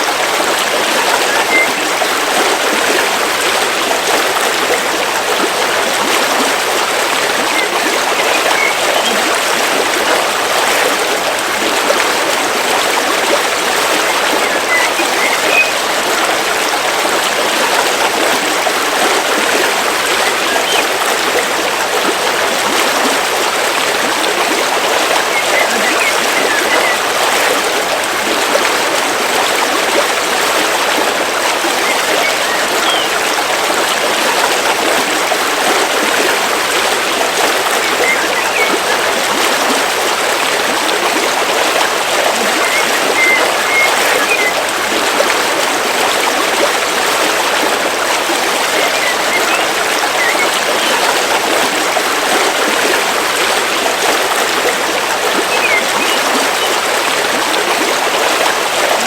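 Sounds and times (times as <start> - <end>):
river water flowing: 0.0 - 59.0
faint bird chirps: 1.2 - 1.8, 7.5 - 9.2, 14.1 - 15.8, 25.3 - 27.0, 31.8 - 33.2, 37.8 - 38.8, 42.6 - 44.6, 48.8 - 51.0, 55.5 - 56.8.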